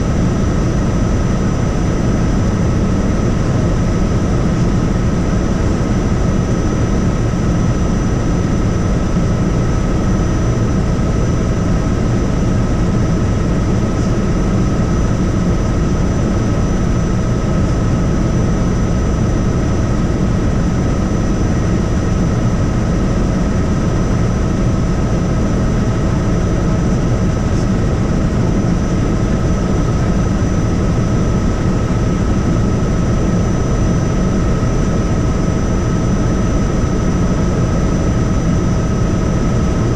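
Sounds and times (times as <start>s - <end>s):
helicopter rotor rumble: 0.0s - 39.9s.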